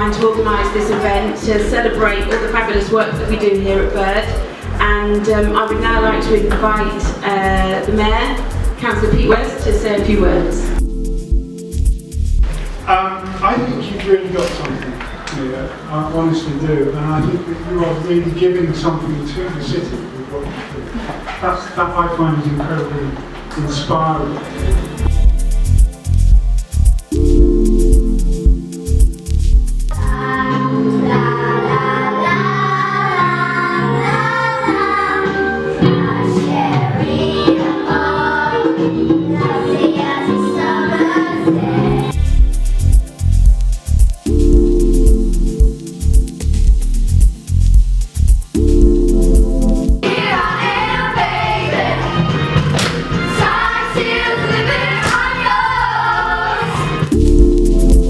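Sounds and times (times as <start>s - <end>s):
held chords: 0.0s - 32.7s, 33.9s - 58.0s
instrumental accompaniment: 0.0s - 58.0s
group of voices singing: 30.0s - 42.3s, 50.0s - 57.2s.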